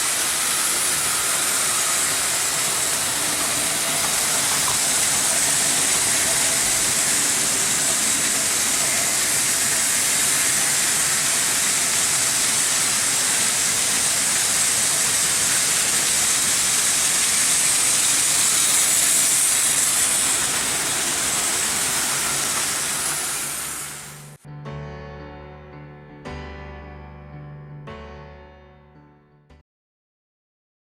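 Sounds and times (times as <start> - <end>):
model trains running on track: 0.0 - 24.4.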